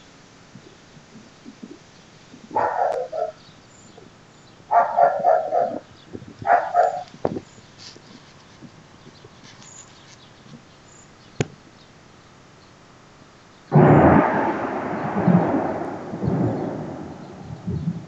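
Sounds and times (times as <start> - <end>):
faint background hiss: 0.0 - 18.0
dog barking: 2.5 - 3.4, 4.7 - 7.2.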